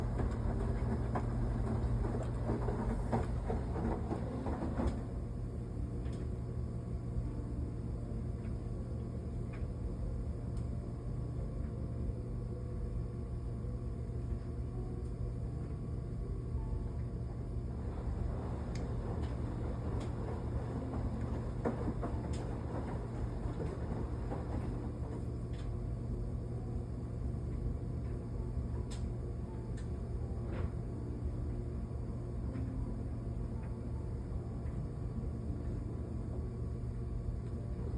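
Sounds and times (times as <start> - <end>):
washing machine drum rumbling: 0.0 - 6.5, 14.3 - 26.6
washing machine motor hum: 0.0 - 37.9.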